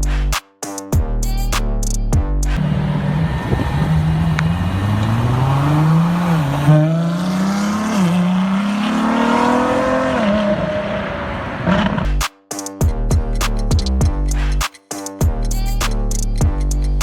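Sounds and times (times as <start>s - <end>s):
car engine accelerating: 2.6s - 12.1s.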